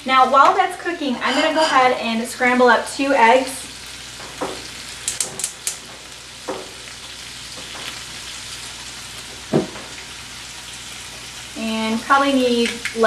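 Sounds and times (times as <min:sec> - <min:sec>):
tofu sizzling in a frying pan: 0:00.1 - 0:13.0
oil popping and knocks: 0:09.5 - 0:09.9.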